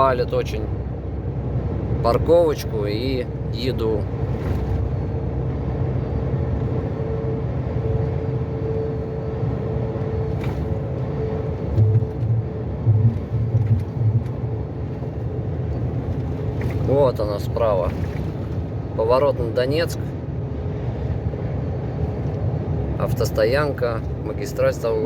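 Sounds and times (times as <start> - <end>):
truck engine and road rumble: 0.0 - 25.0
low thumps: 11.6 - 16.8.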